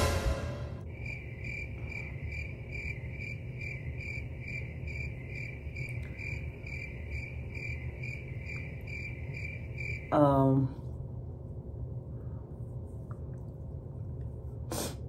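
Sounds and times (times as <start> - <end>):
low steady rumble: 0.0 - 14.7
crickets chirping: 0.8 - 10.6.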